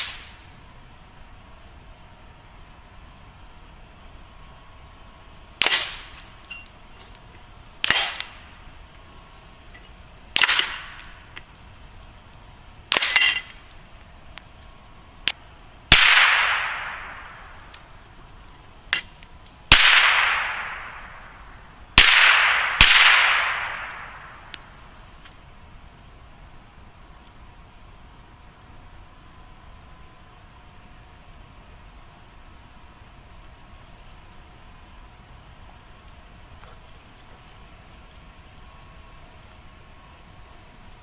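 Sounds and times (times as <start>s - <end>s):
rifle shots at metal targets: 5.6s - 6.4s, 7.8s - 8.4s, 10.4s - 11.1s, 12.9s - 13.6s, 15.9s - 17.4s, 19.7s - 21.2s, 22.0s - 24.4s.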